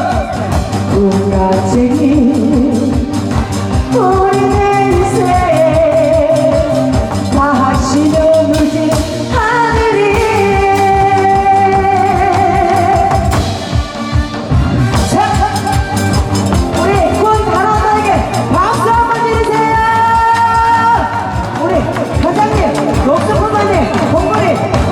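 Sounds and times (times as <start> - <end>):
person singing with vibrato: 0.0 - 13.6
backing track with drum beat: 0.0 - 24.9.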